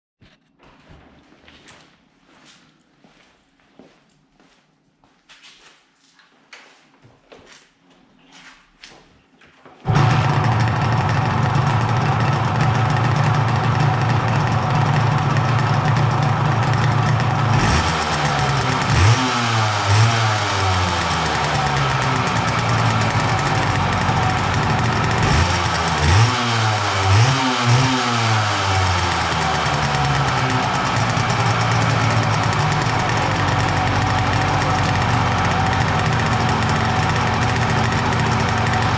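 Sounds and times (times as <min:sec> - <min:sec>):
two-stroke engine revving: 0:09.9 - 0:38.9.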